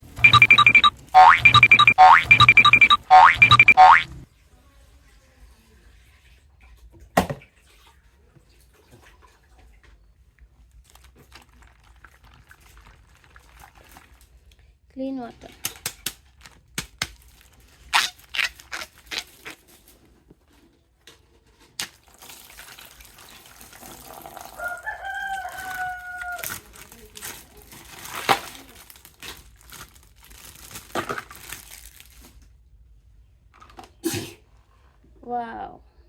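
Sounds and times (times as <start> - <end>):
plastic packaging rustling: 16.2 - 18.7, 26.4 - 32.4.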